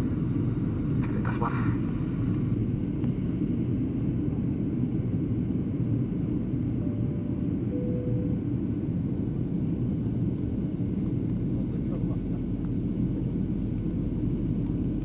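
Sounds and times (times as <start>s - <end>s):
airliner cabin rumble: 0.0s - 15.0s
short soft chime tones: 6.8s - 8.4s.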